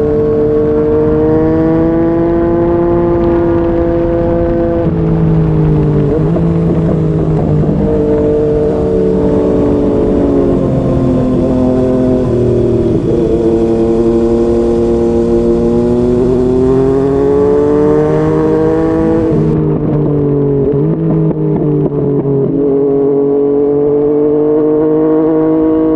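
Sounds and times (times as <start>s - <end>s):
motorcycle engine accelerating: 0.0s - 25.9s.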